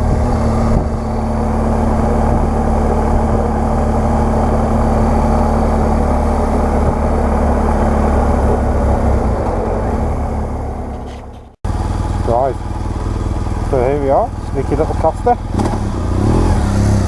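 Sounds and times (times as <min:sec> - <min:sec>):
wind rush on microphone: 0:00.0 - 0:10.4
motorcycle engine running: 0:00.0 - 0:17.0.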